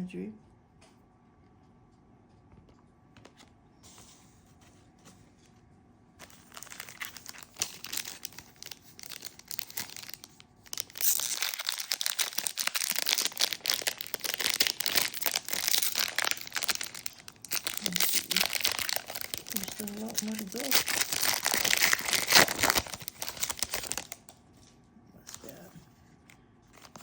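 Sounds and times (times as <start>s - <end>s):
plastic wrapper crinkling and tearing: 6.2s - 27.0s.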